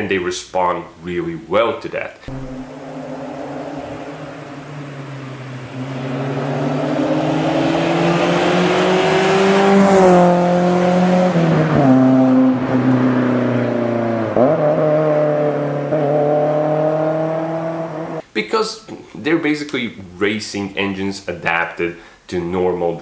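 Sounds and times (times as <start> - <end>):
car engine revving hard: 2.3 - 18.2.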